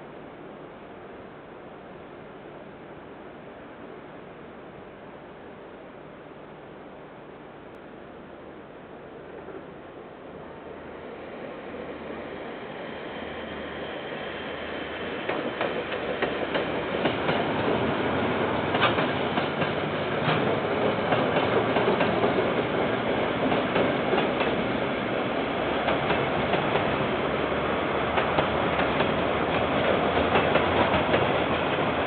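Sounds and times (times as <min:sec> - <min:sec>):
freight train passing: 0:01.9 - 0:32.0
wheels clacking over rails: 0:15.2 - 0:32.0.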